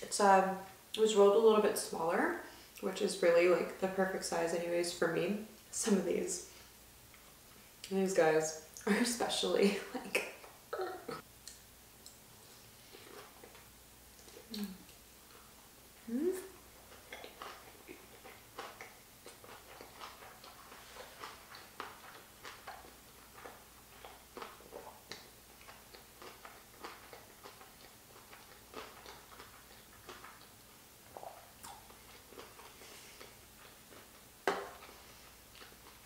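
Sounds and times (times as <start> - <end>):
person chewing crunchy food: 11.4 - 15.6, 16.6 - 36.0
wet mouth clicks: 14.2 - 15.0.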